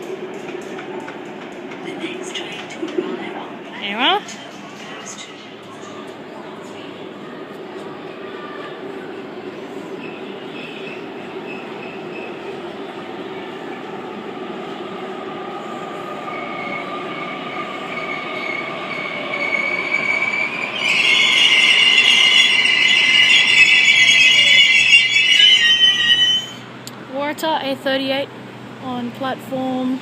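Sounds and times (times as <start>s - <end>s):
electric train rumbling: 0.0s - 30.0s
wheels and brakes squealing: 9.5s - 12.7s, 15.9s - 26.7s.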